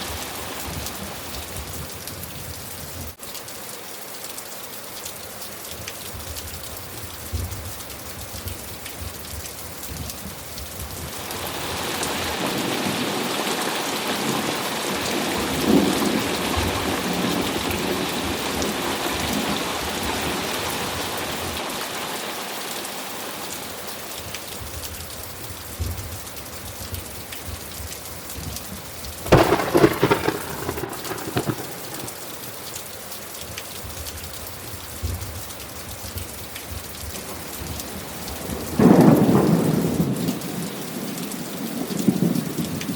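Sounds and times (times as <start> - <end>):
steady rainfall: 0.0 - 42.9
crackling thunderclap: 14.2 - 21.0, 28.4 - 32.7, 37.6 - 42.9
rolling thunder rumble: 29.2 - 32.5, 38.4 - 40.7.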